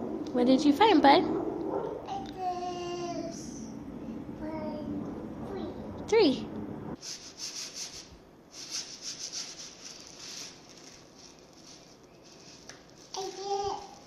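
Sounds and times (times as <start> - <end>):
hands rummaging through rice: 9.2 - 14.0.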